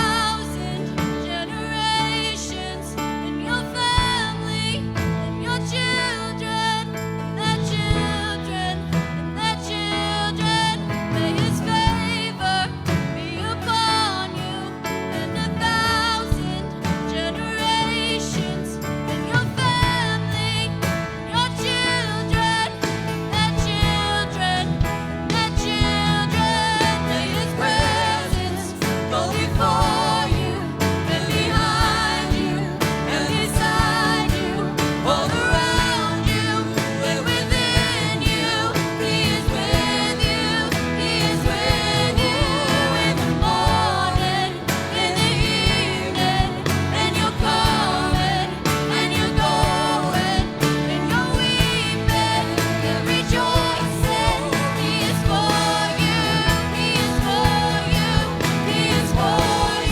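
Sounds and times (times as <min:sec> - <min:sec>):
worship band playing and singing: 0:00.0 - 0:59.9.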